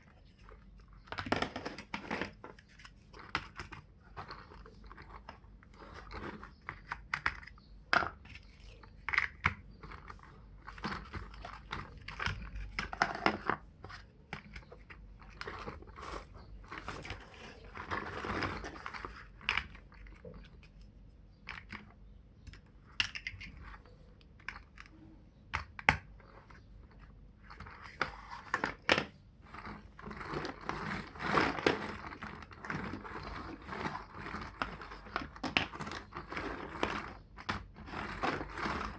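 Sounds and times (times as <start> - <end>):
plastic pieces rustling and rattling: 0.4 - 20.5, 27.4 - 38.9.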